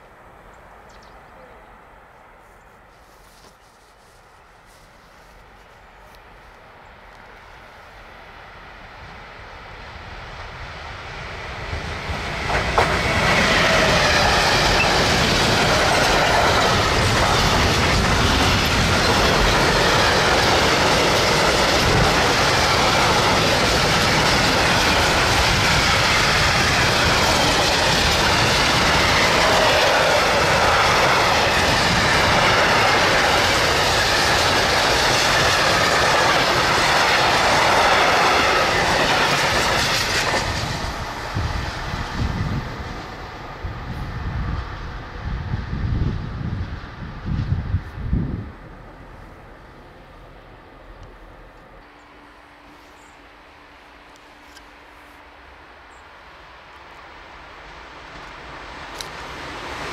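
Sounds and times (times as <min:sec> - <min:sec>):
freight train wheels clattering: 0:11.7 - 0:42.2.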